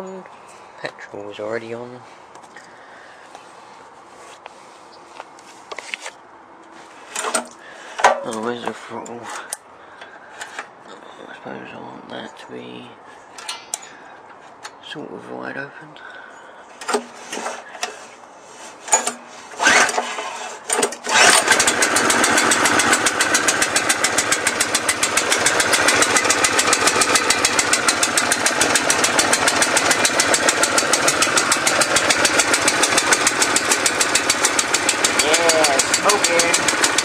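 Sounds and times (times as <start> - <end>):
engine cranking: 7.1 - 9.6, 18.7 - 37.0
petrol engine running: 18.8 - 37.0.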